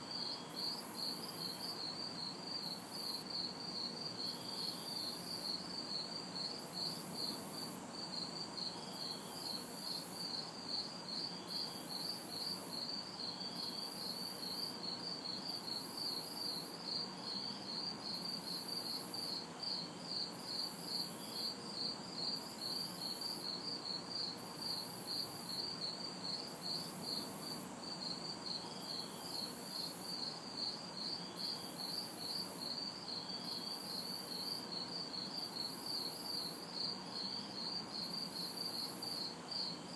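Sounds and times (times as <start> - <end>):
crickets chirping: 0.0 - 39.9
high-pitched insect call: 0.2 - 39.9.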